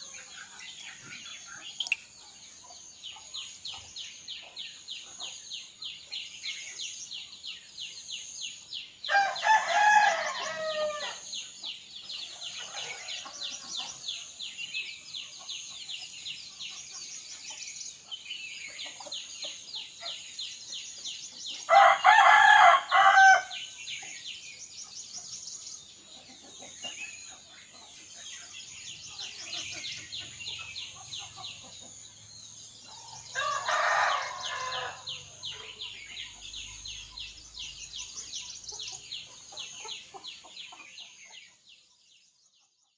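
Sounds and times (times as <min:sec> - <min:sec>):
rooster crowing: 0:09.1 - 0:11.2, 0:21.7 - 0:23.6, 0:33.4 - 0:35.2.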